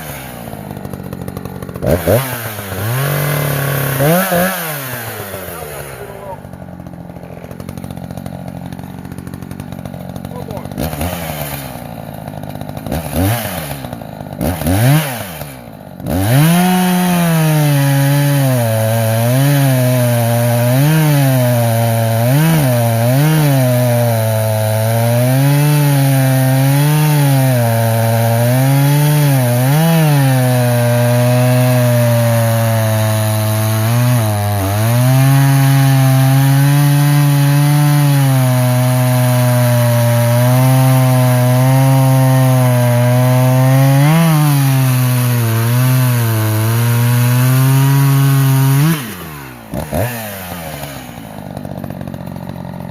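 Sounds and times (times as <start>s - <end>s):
chainsaw cutting through log: 0.0s - 52.9s
chainsaw revving: 0.0s - 52.9s.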